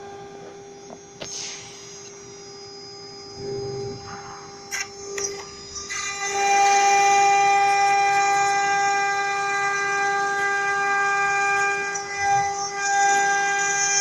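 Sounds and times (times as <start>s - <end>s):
router spindle high-pitched whine: 0.0s - 14.0s.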